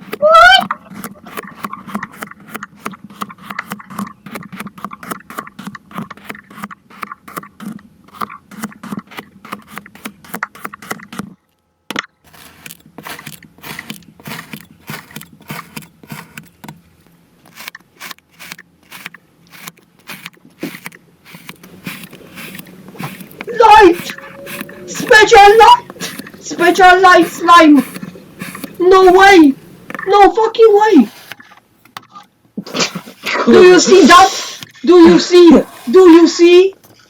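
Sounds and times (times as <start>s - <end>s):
kinetic sand crunching: 12.3s - 31.3s, 32.6s - 36.7s.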